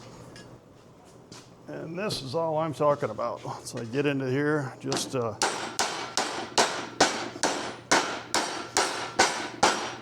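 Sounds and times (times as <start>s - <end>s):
hammer striking sheet steel: 5.0s - 10.0s.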